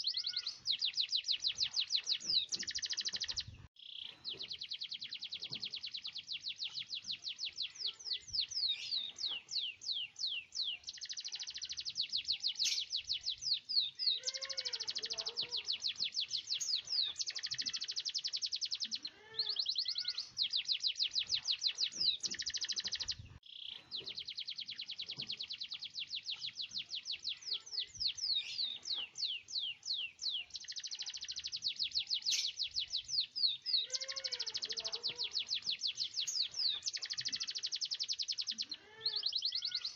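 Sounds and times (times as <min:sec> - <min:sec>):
canary singing rolling trills: 0:00.0 - 0:39.9.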